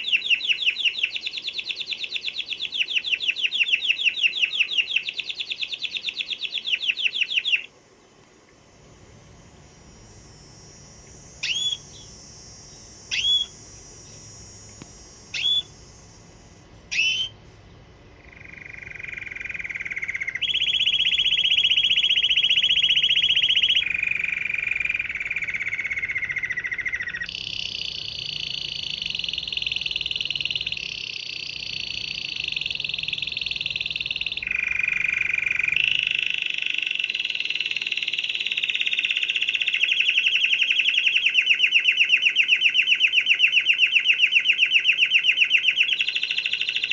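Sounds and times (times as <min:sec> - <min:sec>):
canary singing trills: 0:00.0 - 0:07.7, 0:09.4 - 0:46.9
short whistled notes: 0:11.4 - 0:12.1, 0:13.1 - 0:13.6, 0:15.4 - 0:15.7.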